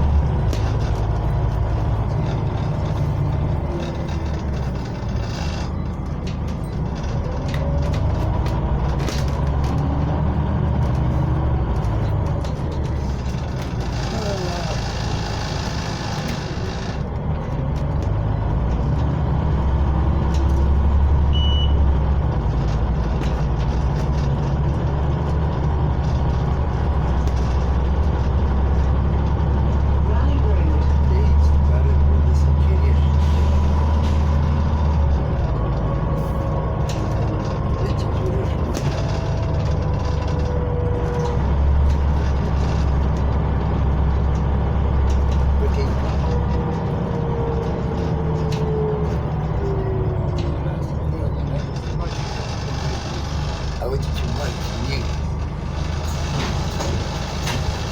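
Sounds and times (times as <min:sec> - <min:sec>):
bus engine drone: 0:00.0 - 0:57.9
high beep: 0:21.3 - 0:21.8.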